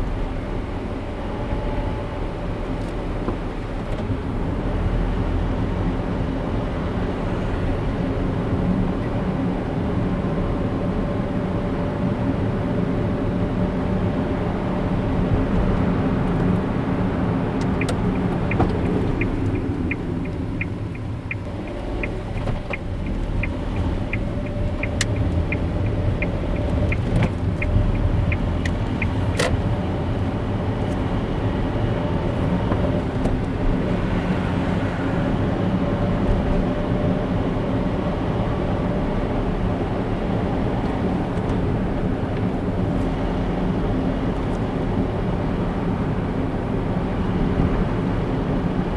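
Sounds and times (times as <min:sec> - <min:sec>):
car engine and tyre noise: 0:00.0 - 0:48.9
light even ticking: 0:17.5 - 0:31.0.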